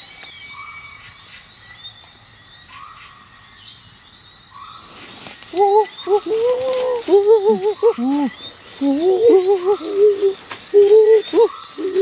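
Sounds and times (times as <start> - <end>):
faint high bird chirps: 0.0 - 12.0
wavering voice-like pitched sound: 5.5 - 12.0.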